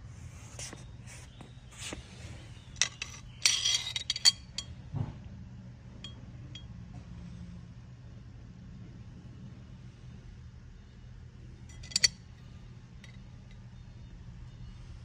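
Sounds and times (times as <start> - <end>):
metal parts clinking and rattling: 2.7 - 4.7, 11.7 - 12.3
faint ringing ticks: 6.0 - 7.0.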